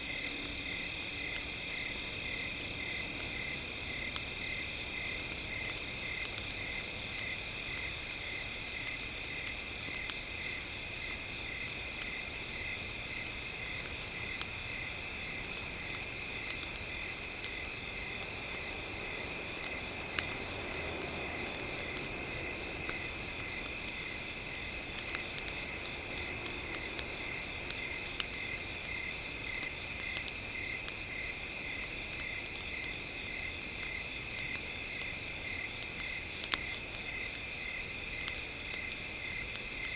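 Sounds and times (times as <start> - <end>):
crickets trilling: 0.0 - 39.9
faint crackles: 0.0 - 39.9
cricket chirping in pulses: 0.1 - 39.9.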